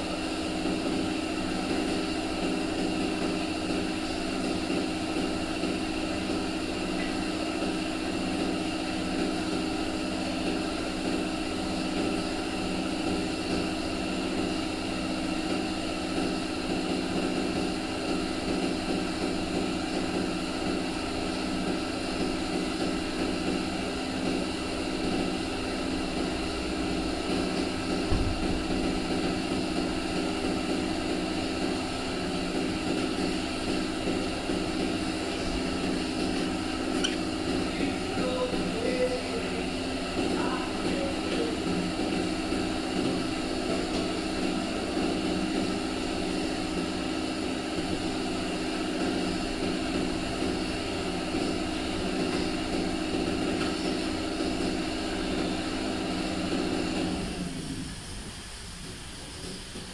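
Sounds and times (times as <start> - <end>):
machine humming: 0.0 - 59.6
low thump: 28.1 - 28.5.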